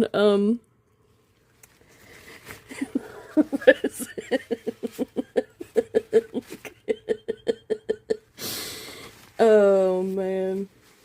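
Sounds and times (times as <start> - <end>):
woman laughing in short bursts: 2.7 - 8.3.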